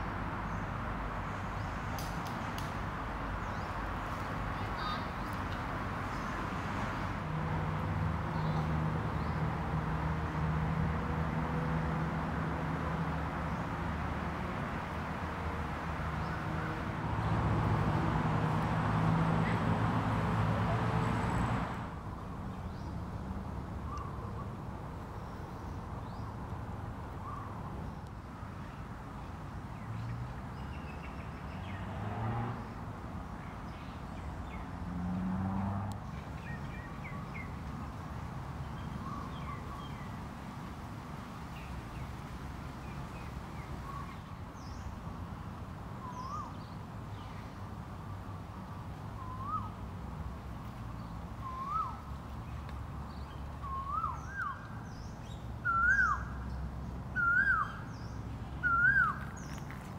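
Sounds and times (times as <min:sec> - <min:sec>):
birds with upward-hooked calls: 0:51.4 - 0:56.5, 0:57.1 - 0:59.8.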